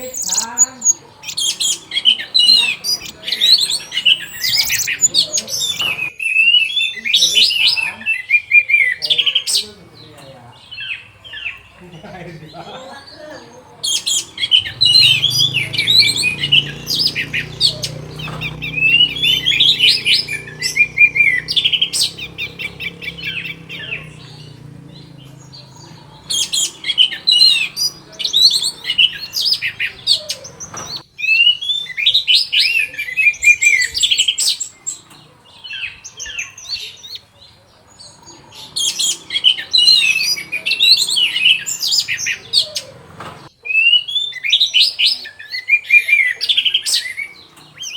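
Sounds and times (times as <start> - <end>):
thrush singing: 0.0 - 6.2, 13.4 - 37.3, 38.0 - 43.5.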